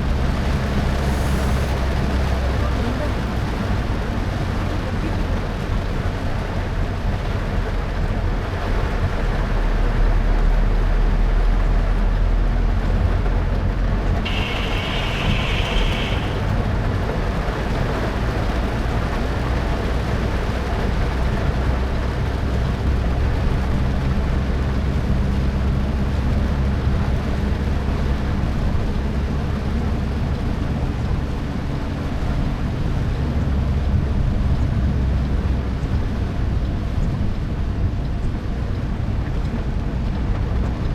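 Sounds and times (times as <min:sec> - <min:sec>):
wet road hiss: 0:00.0 - 0:05.2, 0:14.2 - 0:16.6
car engine and tyre rumble: 0:00.0 - 0:40.9.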